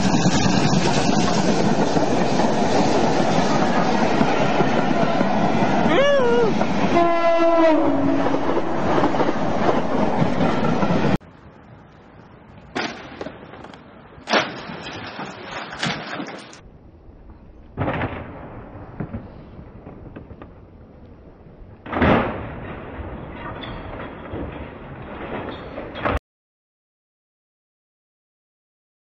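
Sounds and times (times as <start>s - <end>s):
train passing close by: 0.0s - 12.6s
train horn: 6.9s - 8.4s
knocks and crashes: 12.8s - 16.6s.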